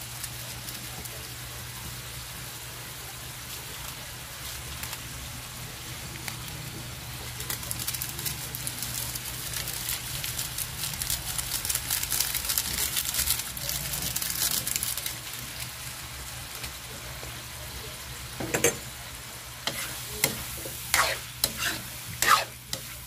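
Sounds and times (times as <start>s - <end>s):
food sizzling in a wok: 0.0s - 23.0s
dense crackling: 6.0s - 17.0s.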